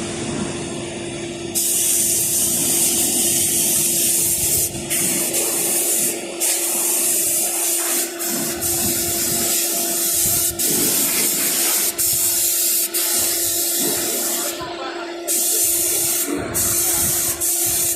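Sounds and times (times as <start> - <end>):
pump humming: 0.0 - 17.9
pressure washer spraying water: 1.6 - 14.7, 15.3 - 17.9.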